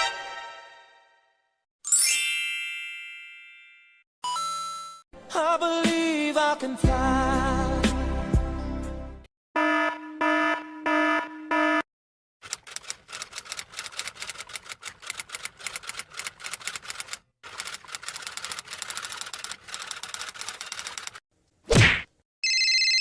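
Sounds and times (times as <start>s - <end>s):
rapid typing key clicks: 12.4s - 21.2s.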